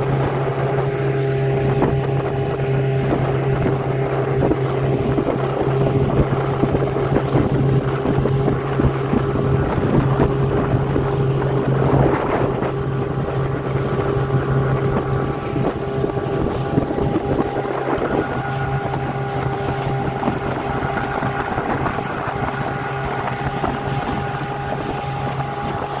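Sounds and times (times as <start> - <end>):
wind across microphone: 0.0 - 26.0
motor humming: 1.4 - 26.0.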